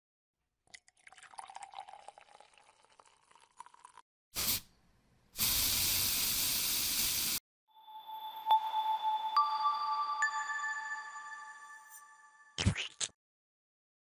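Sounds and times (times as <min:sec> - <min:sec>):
spray hissing: 0:04.4 - 0:04.6, 0:05.4 - 0:07.4.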